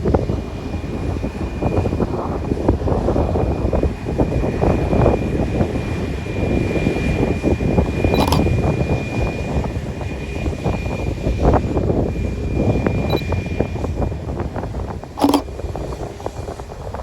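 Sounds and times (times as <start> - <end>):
airliner engines rumbling: 0.0 - 17.0.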